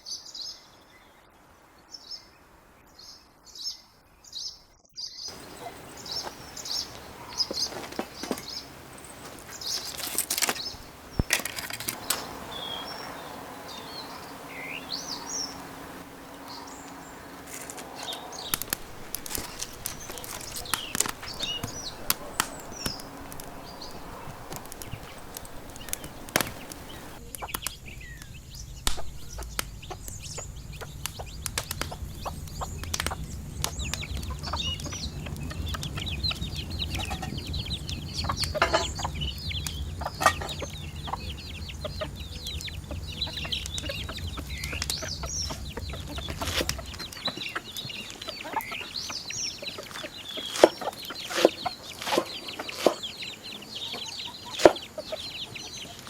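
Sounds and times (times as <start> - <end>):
low steady hum: 5.3 - 47.5
chickens clucking: 5.3 - 56.0.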